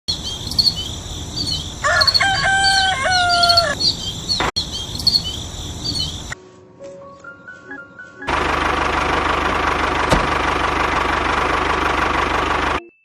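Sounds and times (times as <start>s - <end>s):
high chirping of birds or insects: 0.1s - 6.4s
rooster crowing: 1.7s - 3.9s.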